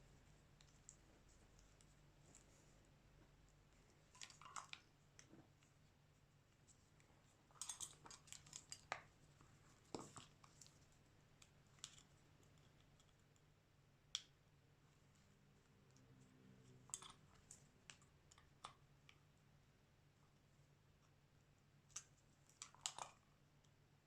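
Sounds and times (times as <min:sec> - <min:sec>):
small clicks of hand tools: 0:21.9 - 0:23.8.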